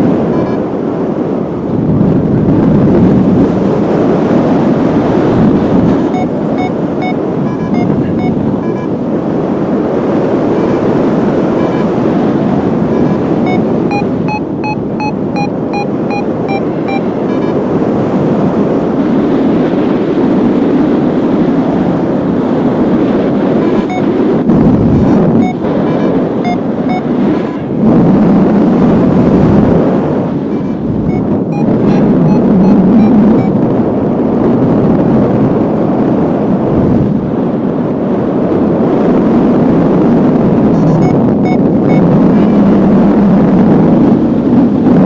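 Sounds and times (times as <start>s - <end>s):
wind rushing over microphone: 0.0s - 45.0s
variometer electronic beeps: 0.2s - 0.7s, 5.6s - 9.0s, 10.3s - 17.8s, 23.8s - 27.6s, 30.4s - 33.7s, 40.6s - 42.2s.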